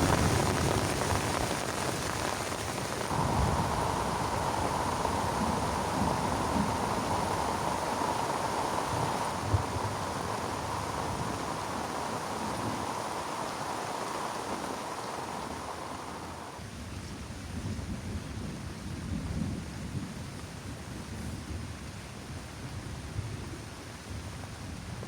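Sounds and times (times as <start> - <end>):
heavy rain falling: 0.0 - 16.6
low thunder rumbling: 0.0 - 16.6.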